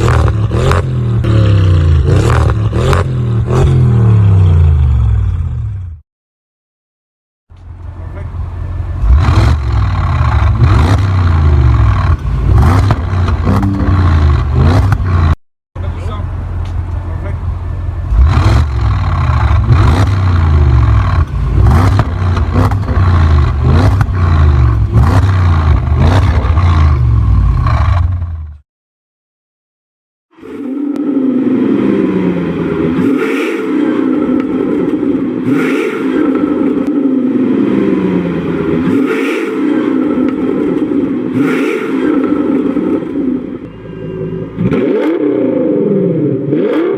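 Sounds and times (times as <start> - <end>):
car engine revving hard: 0.0 - 4.9, 9.0 - 15.4, 18.1 - 28.2, 31.1 - 43.5, 44.6 - 46.9
car exhaust running loud: 7.6 - 28.5.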